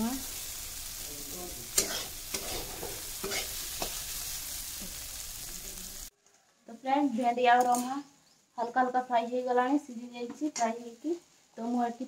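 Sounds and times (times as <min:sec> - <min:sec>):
okra sizzling in hot oil: 0:00.0 - 0:06.2, 0:07.6 - 0:12.0
metal spatula scraping pan: 0:01.7 - 0:05.0.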